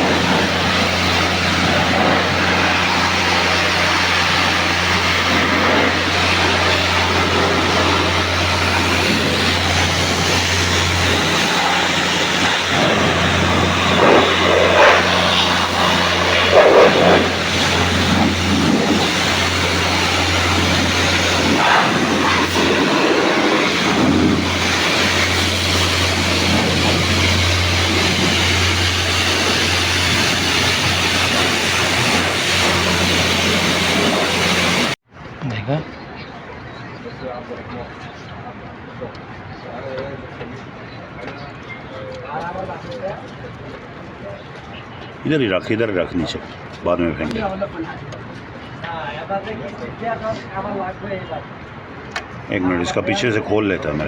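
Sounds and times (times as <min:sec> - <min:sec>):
machine rushing hiss: 0:00.0 - 0:35.0.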